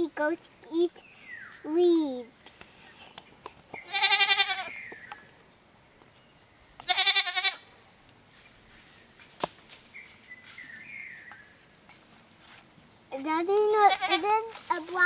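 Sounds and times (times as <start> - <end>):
goat bleating: 3.9 - 4.7, 6.8 - 7.7, 13.8 - 14.3.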